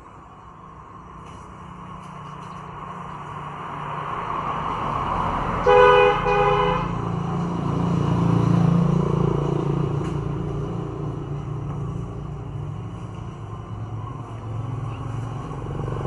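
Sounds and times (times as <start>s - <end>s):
passing traffic rumble: 0.0s - 16.0s
vehicle horn honking: 5.6s - 7.0s.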